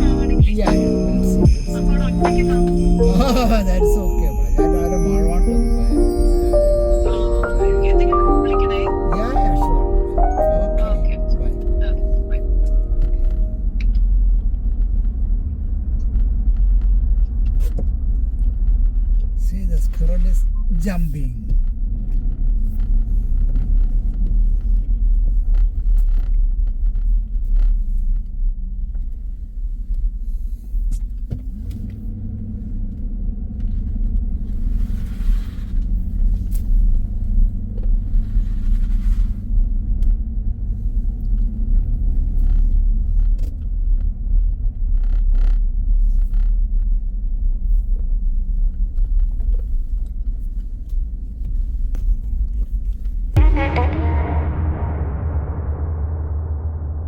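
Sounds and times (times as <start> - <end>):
road noise: 0.0 - 26.0
car engine rumble: 0.0 - 57.0.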